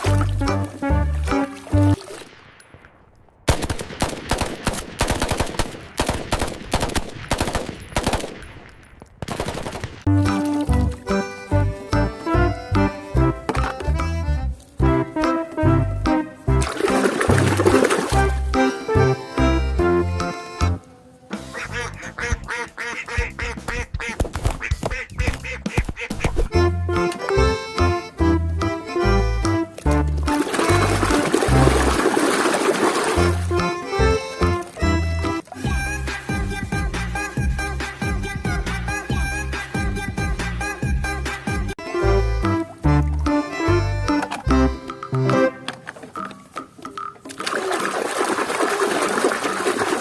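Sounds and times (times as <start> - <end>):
rapid sharp bangs: 3.5 - 8.6
rapid duck-like quacks: 21.5 - 26.5
music with heavy beat: 35.7 - 41.7.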